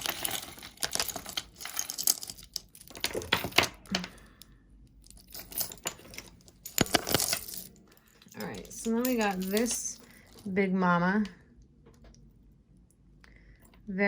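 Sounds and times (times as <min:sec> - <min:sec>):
metal and beads clicking: 0:00.0 - 0:04.4, 0:05.0 - 0:10.5.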